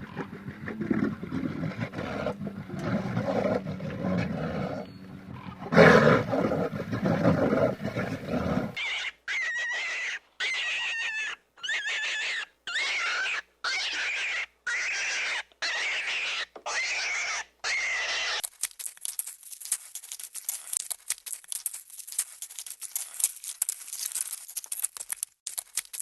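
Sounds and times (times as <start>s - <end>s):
large cat roaring: 0.0s - 8.8s
animal high-pitched calls: 8.8s - 18.5s.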